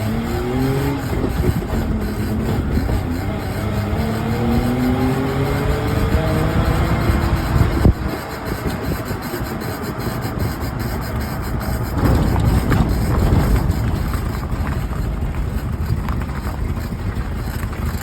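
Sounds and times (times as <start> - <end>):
faint squeaks: 0.0 - 18.0
road and tyre rumble: 0.0 - 18.0
two-stroke engine running: 0.0 - 18.0.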